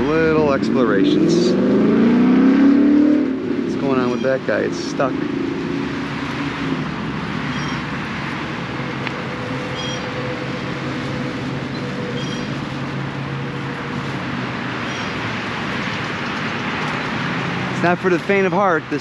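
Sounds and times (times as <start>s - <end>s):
highway traffic: 0.0s - 19.0s.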